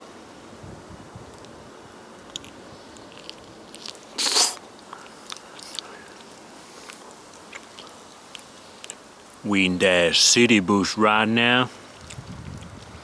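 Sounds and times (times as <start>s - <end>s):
wet chewing clicks: 1.3s - 9.4s, 11.9s - 13.0s.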